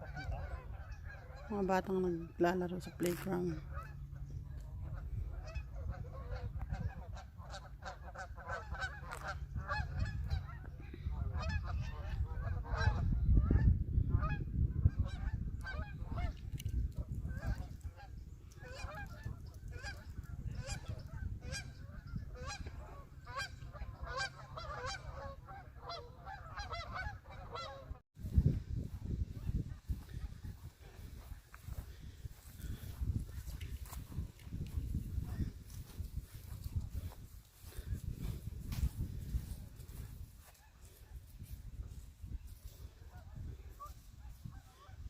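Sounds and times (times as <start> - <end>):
geese honking: 0.0 - 14.4, 17.3 - 28.0
wind rumble on microphone: 0.0 - 45.0.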